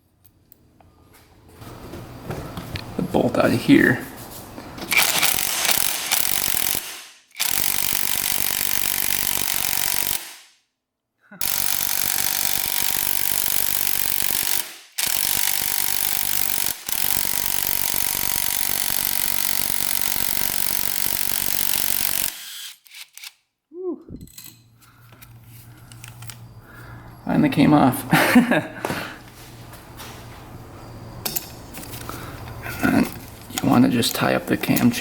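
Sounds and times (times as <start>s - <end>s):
impact wrench hammering: 4.8s - 10.5s, 11.4s - 22.6s.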